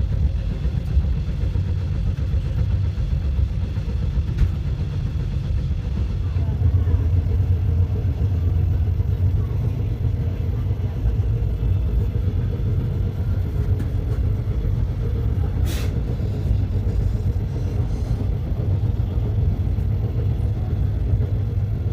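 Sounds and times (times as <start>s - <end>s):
train rumbling: 0.0s - 21.9s
short hiss: 15.6s - 16.1s.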